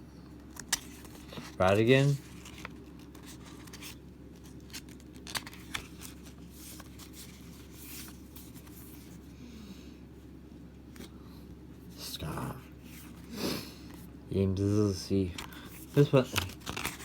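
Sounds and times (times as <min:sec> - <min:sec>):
low room hum: 0:00.0 - 0:17.0
cards rustling: 0:00.4 - 0:09.2, 0:15.2 - 0:17.0.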